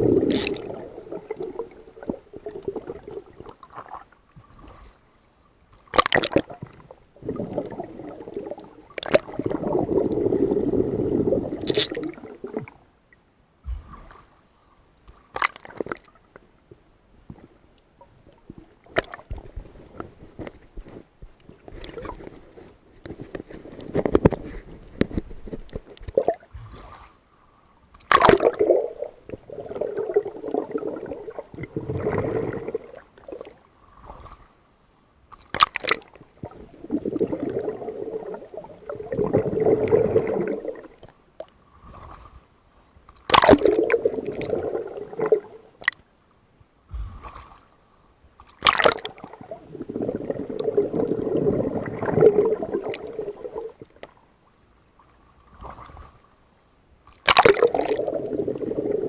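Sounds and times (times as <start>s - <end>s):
water gurgling and bubbling: 0.0s - 3.8s, 6.0s - 12.8s, 28.1s - 34.2s, 35.7s - 41.0s, 43.4s - 45.8s, 48.6s - 54.0s, 57.3s - 59.0s
sharp splash: 48.6s - 49.1s, 57.2s - 57.9s.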